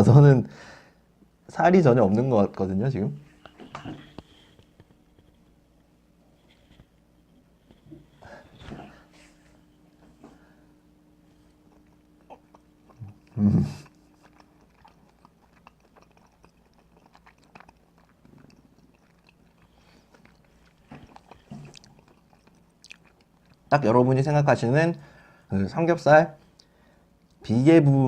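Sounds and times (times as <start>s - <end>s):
person chewing food: 3.3s - 23.7s, 26.4s - 27.4s.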